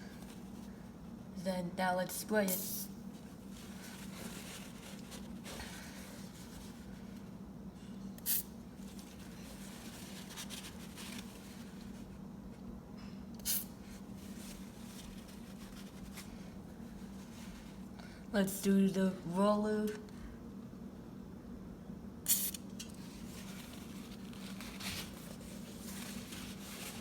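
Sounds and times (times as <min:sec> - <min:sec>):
aerosol spray hissing: 0:08.2 - 0:08.5.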